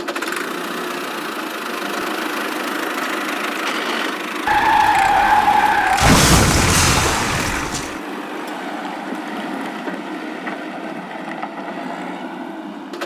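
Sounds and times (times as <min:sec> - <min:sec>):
loud burst of noise: 0:04.5 - 0:08.0.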